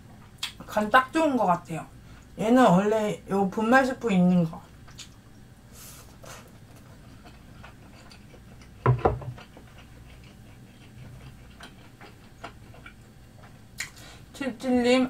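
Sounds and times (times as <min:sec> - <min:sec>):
chewing mouth clicks: 0:04.9 - 0:05.2.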